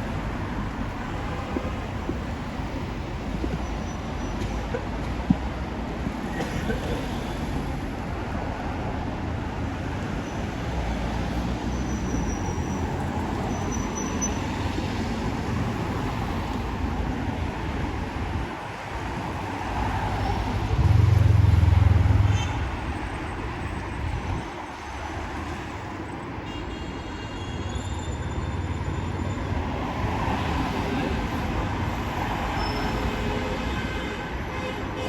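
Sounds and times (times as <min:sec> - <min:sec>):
road traffic noise: 0:00.0 - 0:35.0
loud low rumble: 0:20.7 - 0:22.6.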